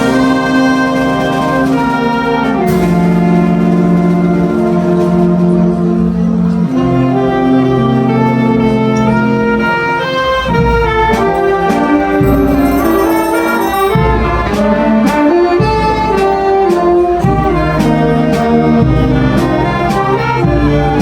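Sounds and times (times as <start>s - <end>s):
wind band playing: 0.0s - 21.0s
sharp percussion strokes: 10.4s - 21.0s.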